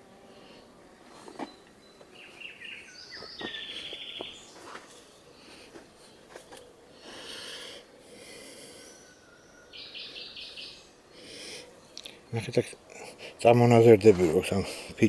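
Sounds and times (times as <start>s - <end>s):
songbirds chirping and singing: 0.3s - 15.0s.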